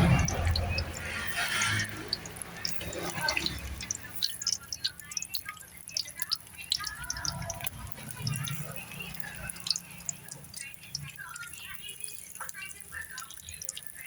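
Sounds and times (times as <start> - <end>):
water dripping: 0.0 - 14.0
water splashing: 0.0 - 14.0.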